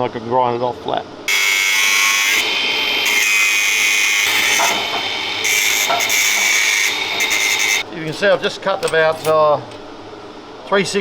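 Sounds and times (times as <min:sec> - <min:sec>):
angle grinder cutting steel: 0:01.3 - 0:07.8.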